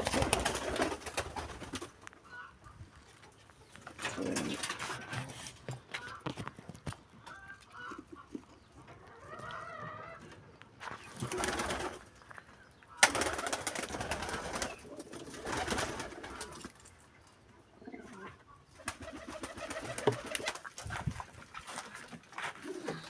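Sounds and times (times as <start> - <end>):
pigeons cooing: 3.6 - 10.4, 11.0 - 12.4, 13.0 - 16.8, 17.5 - 21.1, 22.4 - 23.0
rustling noise: 20.1 - 23.0.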